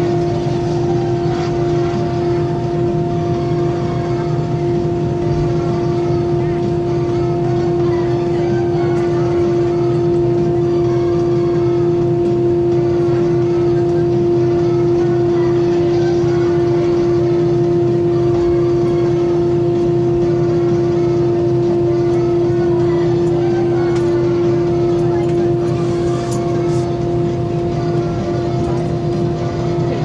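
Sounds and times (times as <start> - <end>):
aircraft cabin hum: 22.1 - 30.0.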